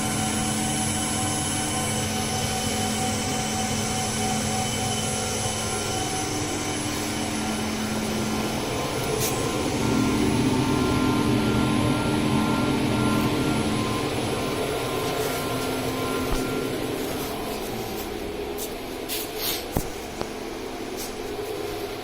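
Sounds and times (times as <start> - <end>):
router mechanical hum: 0.0 - 22.0
spindle whine: 0.0 - 22.0.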